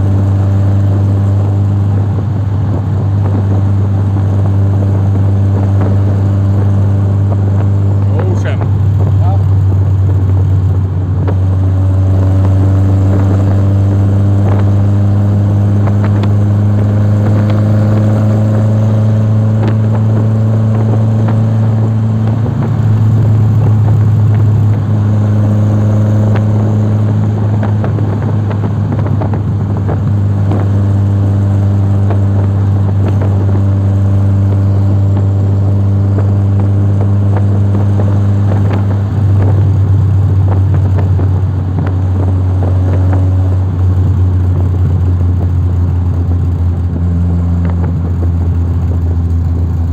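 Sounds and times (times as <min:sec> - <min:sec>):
vehicle engine droning: 0:00.0 - 0:49.9.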